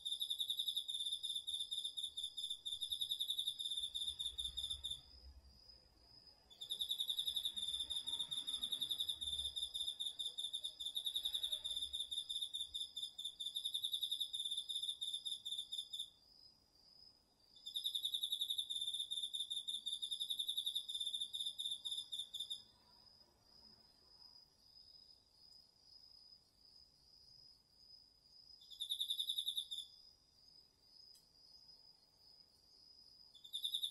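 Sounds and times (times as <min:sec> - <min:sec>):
cricket pulsing high trills: 0:00.0 - 0:05.2, 0:06.5 - 0:16.2, 0:33.4 - 0:33.9
insect continuous trill: 0:00.0 - 0:33.9.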